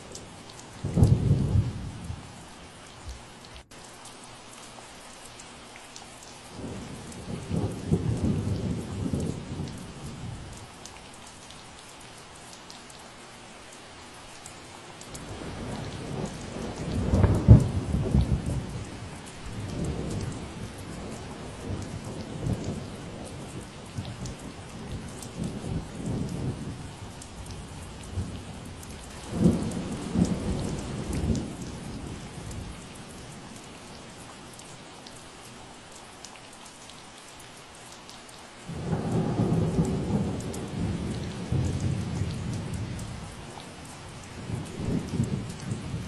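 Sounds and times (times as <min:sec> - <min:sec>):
steady rain falling: 0:00.0 - 0:46.0
thunder rumbling: 0:00.8 - 0:02.3, 0:15.2 - 0:33.0, 0:38.7 - 0:46.0.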